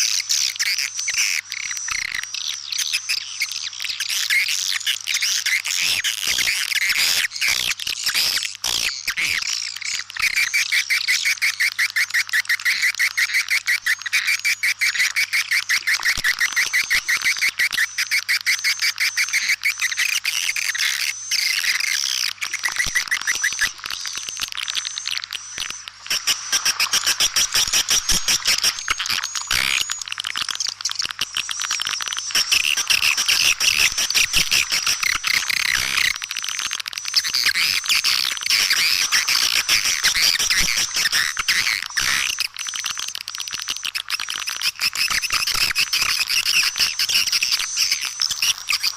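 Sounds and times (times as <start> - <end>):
swiftlets chittering and twittering: 0.0 - 48.9.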